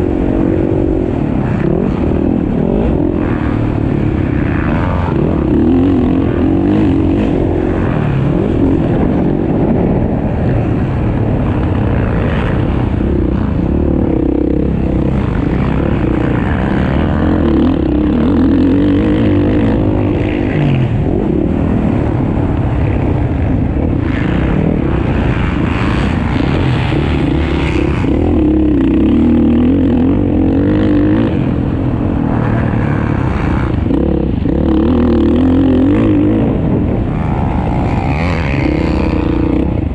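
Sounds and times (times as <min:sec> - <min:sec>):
motocross bikes revving: 0:00.0 - 0:39.9.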